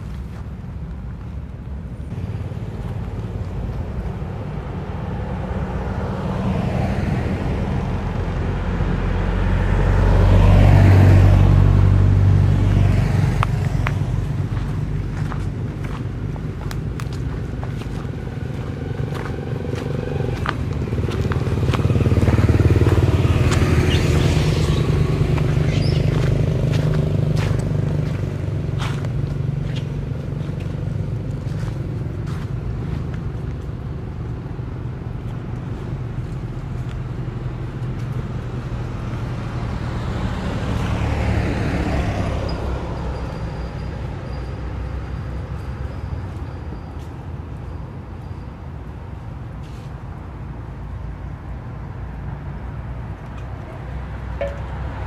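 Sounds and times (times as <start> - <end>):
vehicle passing: 0.0 - 47.7, 49.7 - 55.0
car engine idling: 13.4 - 34.0.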